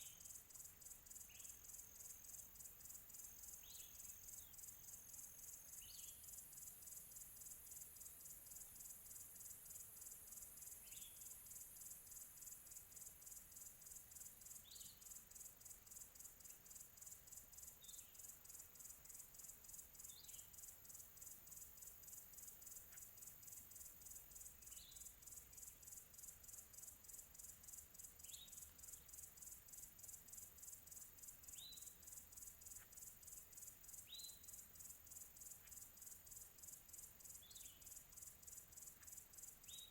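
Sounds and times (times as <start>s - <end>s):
crickets chirping: 0.0s - 39.9s
bird chirps: 28.2s - 29.2s, 31.4s - 32.0s, 34.0s - 34.6s, 37.3s - 38.0s, 38.9s - 39.9s.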